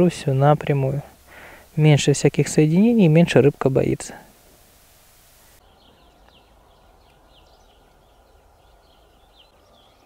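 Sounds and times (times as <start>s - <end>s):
distant songbirds chirping: 0.0s - 10.0s.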